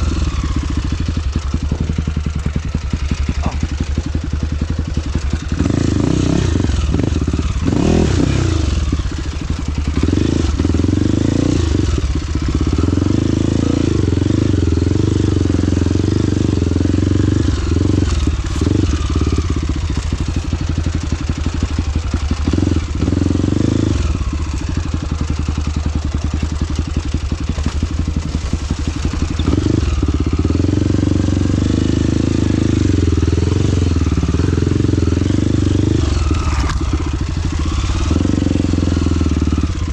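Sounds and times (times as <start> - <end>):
trail motorcycle engine: 0.0 - 39.9.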